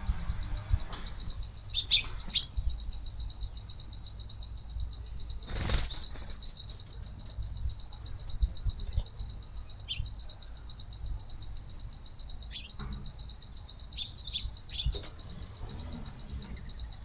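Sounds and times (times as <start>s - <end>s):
faint high pulsing background: 0.0s - 17.0s
small birds chirping: 0.2s - 17.0s.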